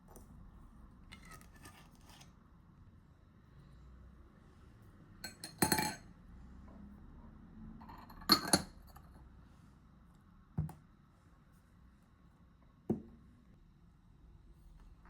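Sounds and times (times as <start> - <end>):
kitchenware clinking and knocking: 5.3 - 6.0, 7.8 - 8.9.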